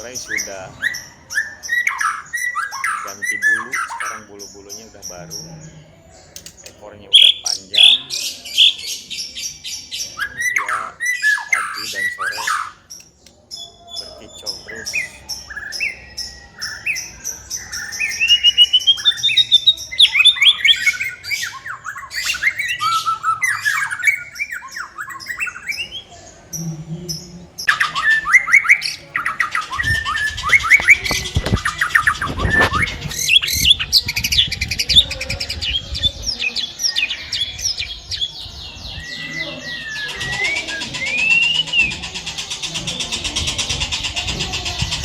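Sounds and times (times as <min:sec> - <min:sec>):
bird singing whistled phrases: 0:00.0 - 0:04.8, 0:06.4 - 0:08.8, 0:10.1 - 0:26.1, 0:27.6 - 0:43.1
rapid bird trills: 0:00.0 - 0:45.0
sharp clicks: 0:06.3 - 0:06.8, 0:12.9 - 0:13.4.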